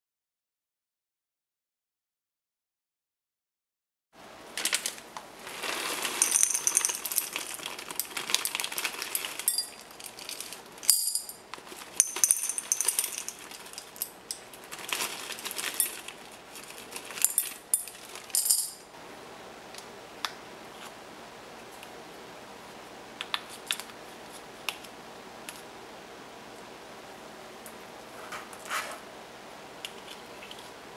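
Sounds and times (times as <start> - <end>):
kitchen utensils and dishes clinking: 5.6 - 18.8.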